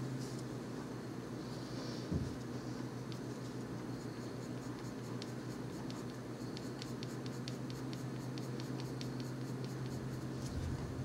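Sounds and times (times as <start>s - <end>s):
steady low hum: 0.0s - 11.0s
pencil scratching on paper: 2.9s - 10.6s.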